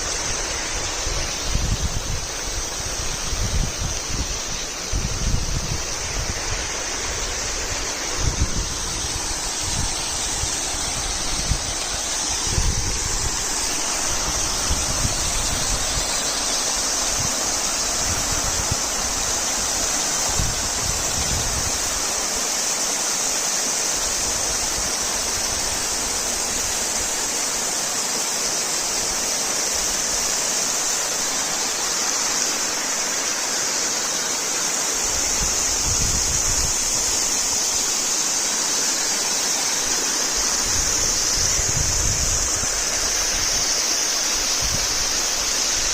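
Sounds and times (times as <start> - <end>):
waterfall rushing: 0.0 - 45.9.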